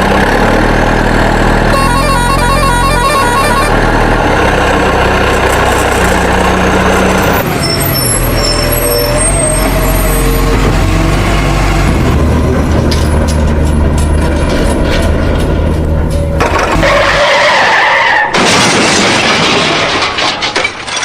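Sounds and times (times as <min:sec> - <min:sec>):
heavy engine drone: 0:00.0 - 0:17.3
tyres squealing and skidding: 0:01.7 - 0:04.1, 0:07.0 - 0:11.0, 0:16.2 - 0:18.4.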